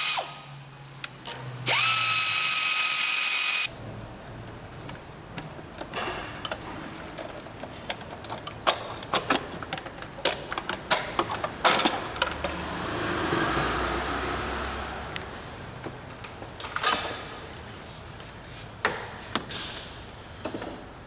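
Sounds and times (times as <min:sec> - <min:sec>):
mechanical whirr: 0:01.6 - 0:03.7.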